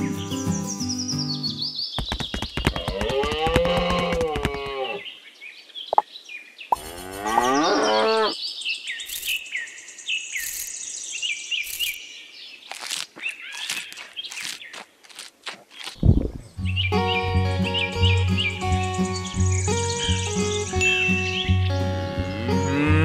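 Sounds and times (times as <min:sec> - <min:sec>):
small birds chirping: 0:00.0 - 0:23.0
cow mooing: 0:06.8 - 0:08.4, 0:22.3 - 0:23.0.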